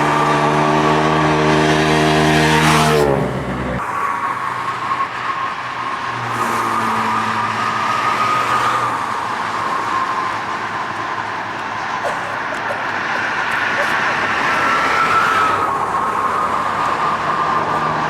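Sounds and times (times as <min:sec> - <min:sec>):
distant motorcycle engine hum: 0:00.0 - 0:18.0
street noise: 0:00.0 - 0:18.0.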